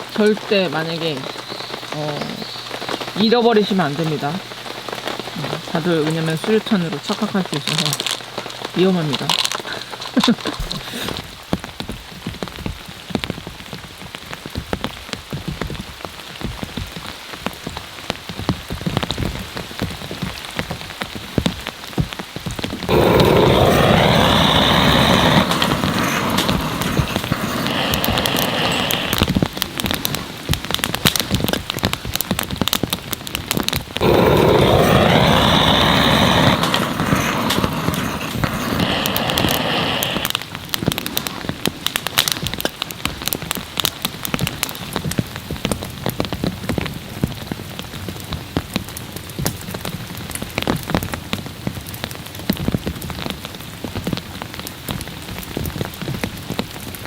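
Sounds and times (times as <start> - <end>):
heavy rain on a tarp: 0.0 - 57.0
rushing surge: 22.9 - 30.8, 34.0 - 42.3.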